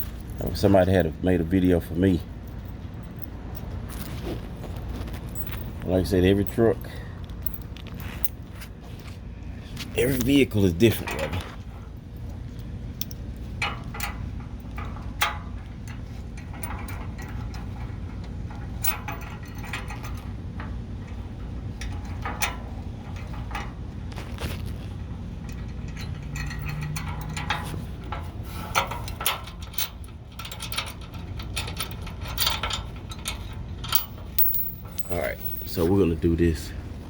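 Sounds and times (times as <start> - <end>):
steady low rumble: 0.0 - 37.0
metal clicks of bolts and wrench: 25.5 - 35.1.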